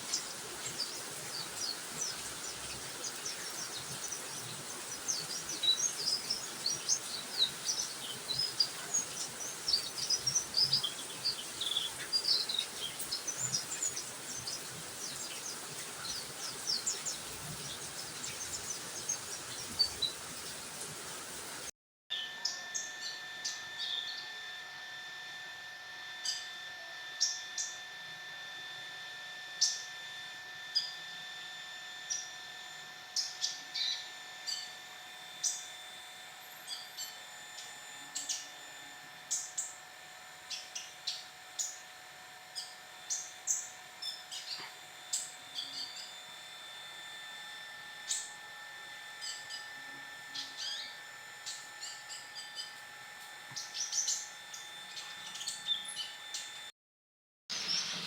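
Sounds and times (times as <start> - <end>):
small songbirds chirping: 0.0 - 21.5, 53.5 - 56.6, 57.6 - 58.0.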